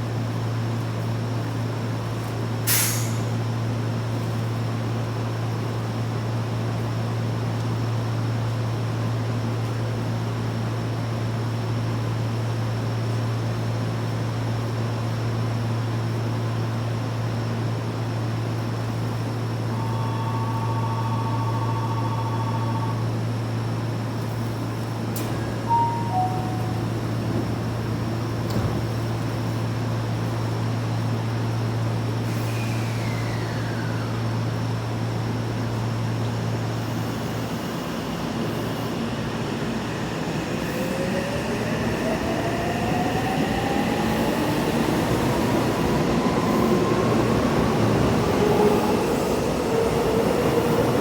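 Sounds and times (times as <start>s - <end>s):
train car hum and fan noise: 0.0s - 51.0s
falling two-note chime: 25.7s - 27.2s
click: 28.4s - 28.7s.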